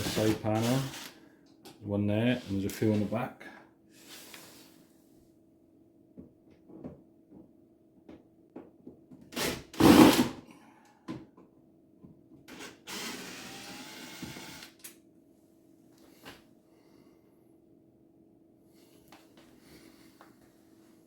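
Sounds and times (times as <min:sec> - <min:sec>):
power screwdriver running: 0:00.0 - 0:01.2, 0:12.5 - 0:14.8.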